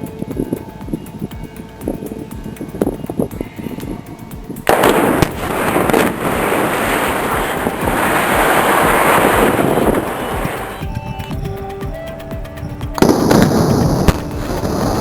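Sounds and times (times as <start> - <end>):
explosive demolition blasts: 4.7 - 10.5.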